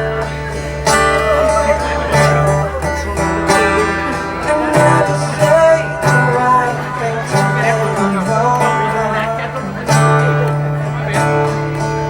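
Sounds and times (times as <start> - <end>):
acoustic guitar chords: 0.0 - 12.0
person singing: 0.0 - 12.0.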